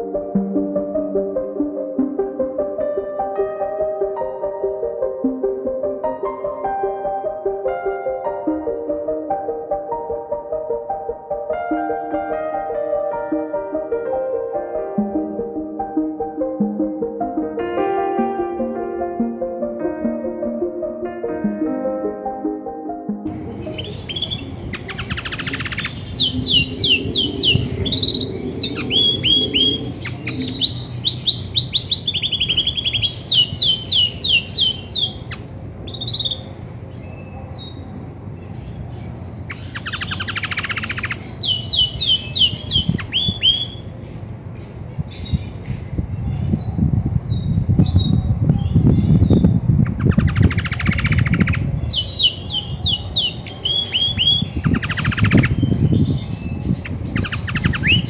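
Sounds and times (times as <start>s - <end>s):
low rumble: 23.3s - 31.1s
canary singing trills: 23.3s - 43.9s, 45.1s - 58.0s.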